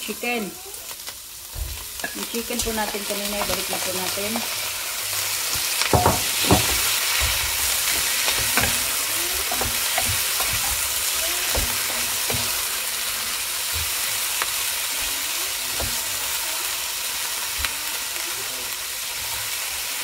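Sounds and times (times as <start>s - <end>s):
food sizzling in hot oil: 0.0s - 20.0s
wooden spoon knocking: 5.8s - 12.7s.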